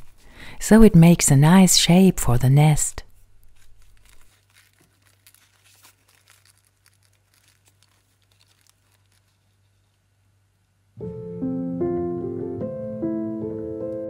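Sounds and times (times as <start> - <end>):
paper tea bags crinkling: 3.2 - 10.6.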